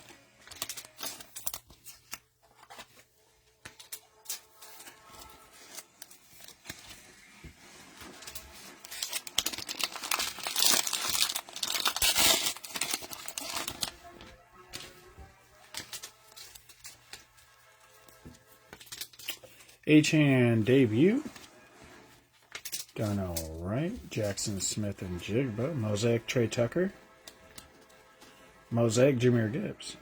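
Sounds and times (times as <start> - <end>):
cellophane tearing: 0.0 - 3.0, 8.2 - 17.3
cellophane wrapping crinkling: 0.0 - 19.8.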